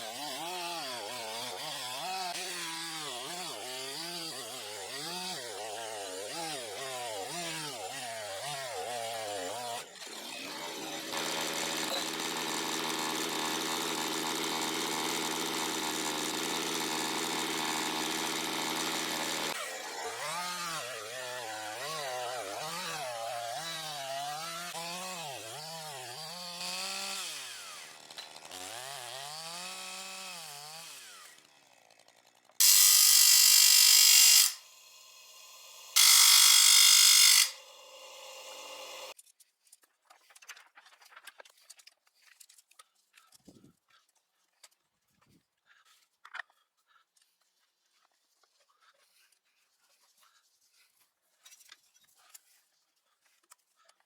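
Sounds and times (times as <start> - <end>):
chainsaw engine running: 0.0 - 39.2.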